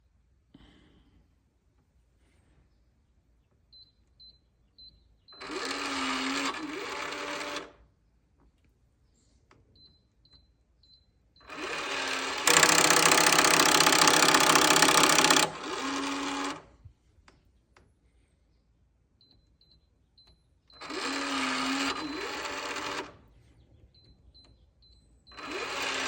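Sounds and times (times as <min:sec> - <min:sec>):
lock motor clicking: 0:05.4 - 0:07.8, 0:11.4 - 0:16.7, 0:20.8 - 0:23.2, 0:25.3 - 0:26.0.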